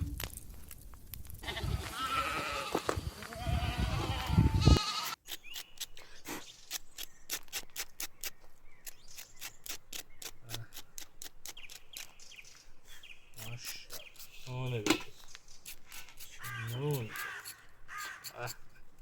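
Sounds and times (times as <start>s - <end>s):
goat bleating: 1.4s - 5.2s
sharp irregular clicks and crackles: 8.8s - 12.2s.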